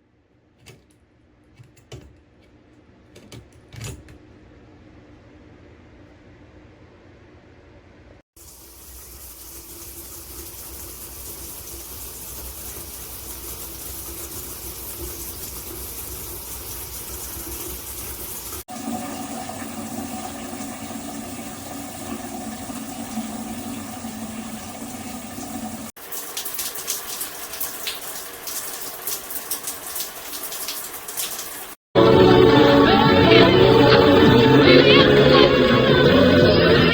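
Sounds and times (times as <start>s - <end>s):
water spraying from shower head: 8.4s - 18.7s, 22.2s - 31.8s.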